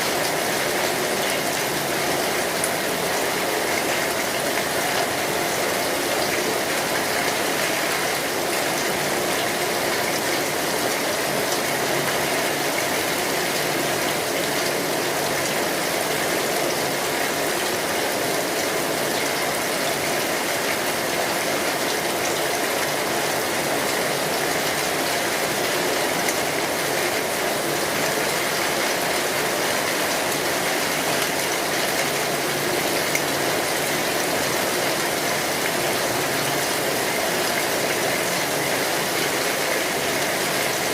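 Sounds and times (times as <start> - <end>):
rain on a metal roof: 0.0 - 40.9.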